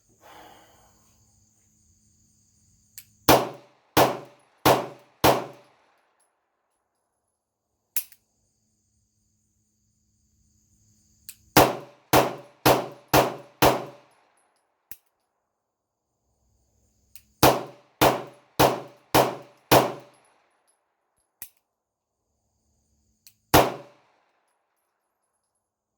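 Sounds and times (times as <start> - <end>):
pistol shots: 3.3 - 5.8, 11.6 - 14.1, 17.4 - 20.2, 23.5 - 24.1.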